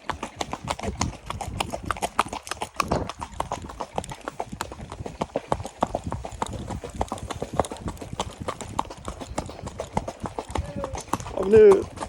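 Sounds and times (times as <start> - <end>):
hooves clip-clopping on street: 0.0 - 12.0.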